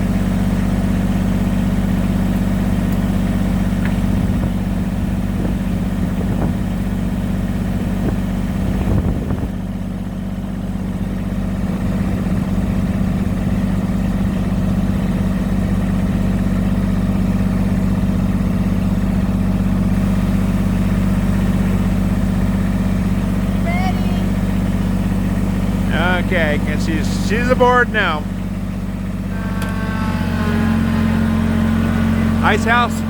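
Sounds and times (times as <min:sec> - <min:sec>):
diesel engine idling: 0:09.7 - 0:33.0.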